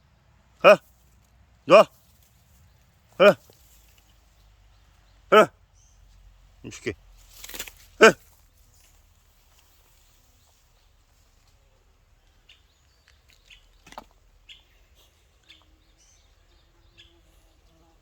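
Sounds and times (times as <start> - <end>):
faint bird chirps: 9.9 - 18.0.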